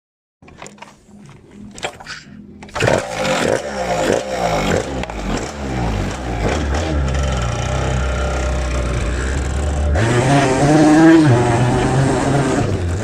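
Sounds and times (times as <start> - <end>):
motorcycle engine revving and idling: 2.7 - 13.0.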